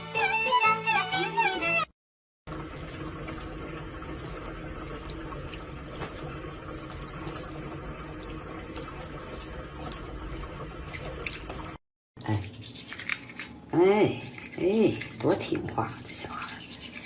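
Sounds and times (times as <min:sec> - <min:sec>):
faint clicks and drips: 0:02.5 - 0:11.8.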